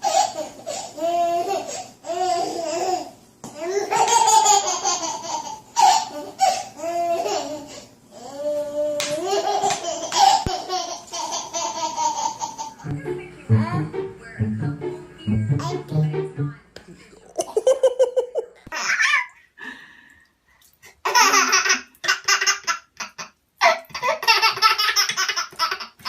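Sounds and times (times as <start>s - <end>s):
baby laughing: 0.0s - 7.8s, 8.9s - 12.9s, 17.4s - 19.4s, 21.0s - 26.0s.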